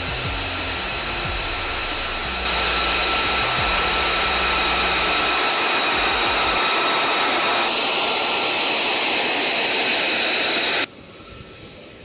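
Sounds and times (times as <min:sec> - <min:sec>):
jet engine roaring and whining: 0:00.0 - 0:12.0.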